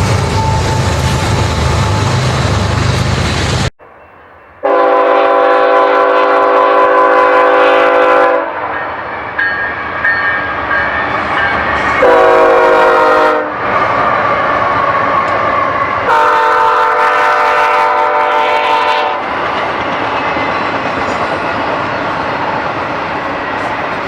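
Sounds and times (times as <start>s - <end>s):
passing train rumble: 0.0s - 24.0s
locomotive air horn blasts: 4.6s - 8.7s, 12.0s - 13.6s, 16.1s - 19.3s.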